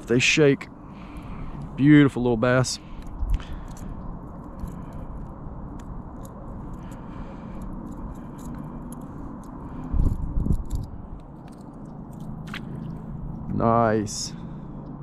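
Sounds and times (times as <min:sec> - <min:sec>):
low steady rumble: 0:00.0 - 0:15.0
light clicks and scrapes: 0:02.9 - 0:13.0.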